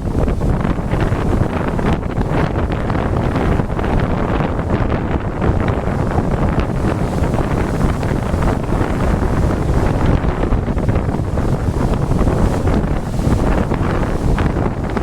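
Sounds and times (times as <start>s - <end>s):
lake surf breaking: 0.0s - 15.0s
strong wind buffeting microphone: 0.0s - 15.0s.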